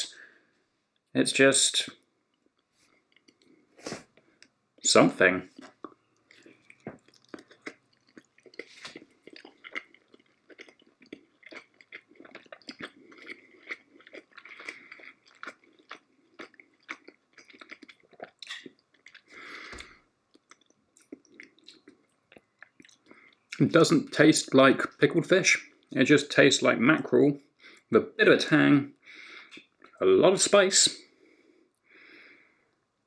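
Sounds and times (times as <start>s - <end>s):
person chewing with mouth clicks: 2.4s - 4.6s, 5.5s - 23.6s, 29.4s - 30.0s.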